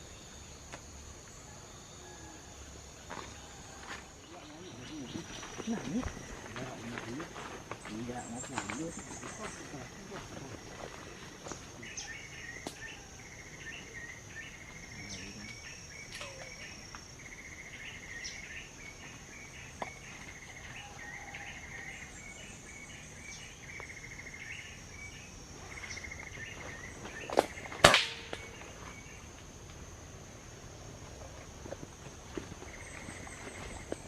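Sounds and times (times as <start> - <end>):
insect buzzing trills: 0.0 - 34.0
insects whining: 0.0 - 34.0
sharp cracks: 27.3 - 28.7.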